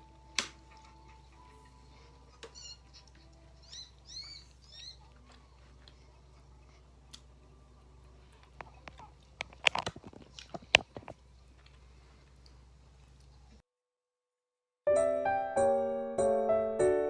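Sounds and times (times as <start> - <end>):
high bird-like chirps: 3.6 - 5.1
crunching fried chicken: 8.4 - 13.2.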